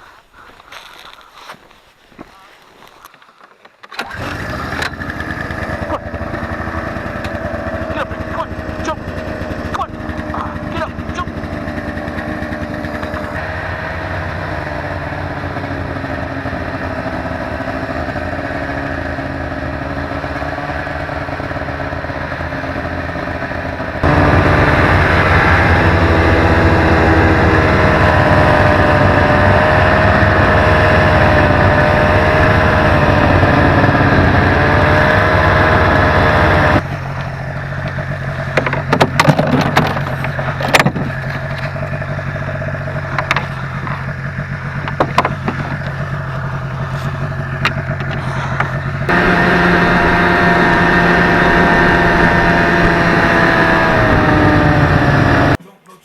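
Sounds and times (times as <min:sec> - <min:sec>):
snowmobile engine running: 0:04.0 - 0:56.0
sharp knocks: 0:38.5 - 0:41.2, 0:44.8 - 0:46.0.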